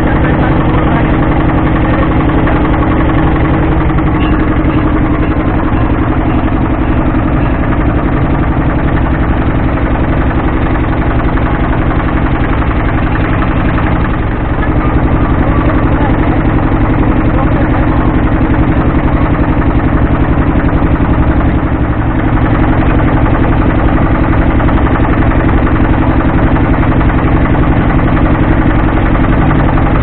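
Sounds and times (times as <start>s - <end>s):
motorboat engine droning: 0.0s - 30.0s.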